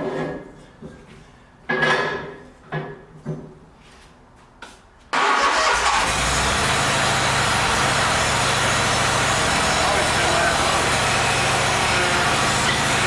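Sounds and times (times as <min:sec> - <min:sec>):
mower engine running: 0:05.2 - 0:13.0
starter cranking mower engine: 0:05.2 - 0:13.0.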